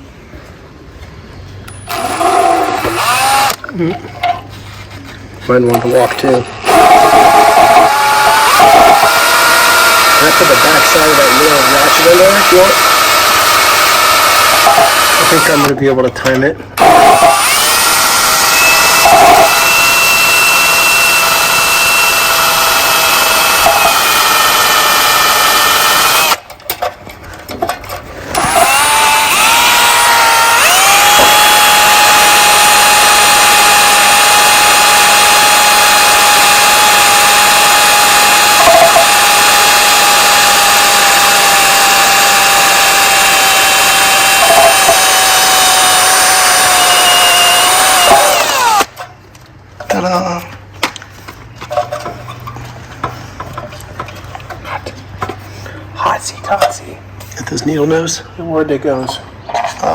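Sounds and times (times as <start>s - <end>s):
electric drill whining: 1.9s - 3.6s, 6.6s - 15.7s, 16.8s - 26.4s, 28.3s - 48.9s.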